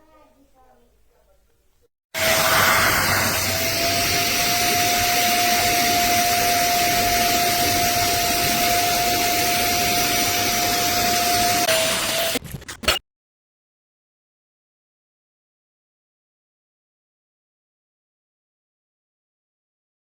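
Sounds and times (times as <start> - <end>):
vacuum cleaner motor whining: 2.2 - 12.4.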